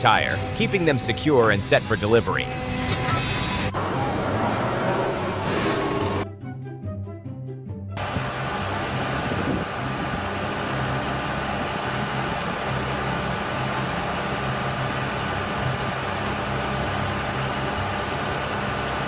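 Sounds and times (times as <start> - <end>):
machine running with low hum: 8.0 - 19.0.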